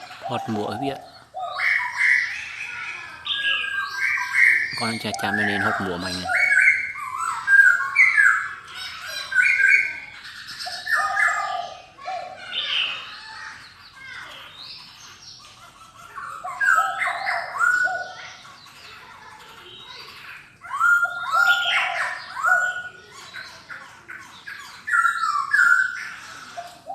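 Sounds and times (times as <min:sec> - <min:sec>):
bird singing whistled phrases: 0:20.6 - 0:23.1, 0:24.6 - 0:26.9.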